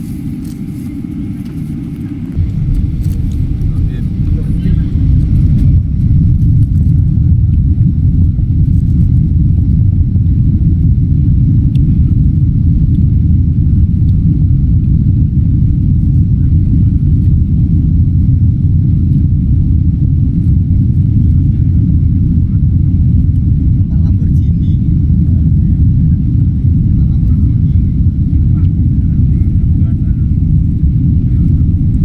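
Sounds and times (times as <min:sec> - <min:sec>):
airplane engines rumbling: 0:00.0 - 0:32.0.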